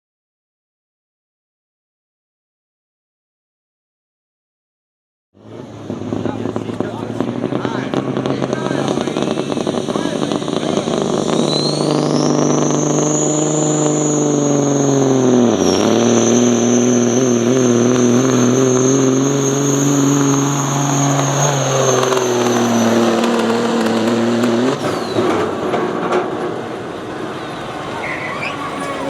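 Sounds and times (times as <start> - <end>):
high whine: 5.4 - 25.7
engine at full throttle: 5.4 - 29.0.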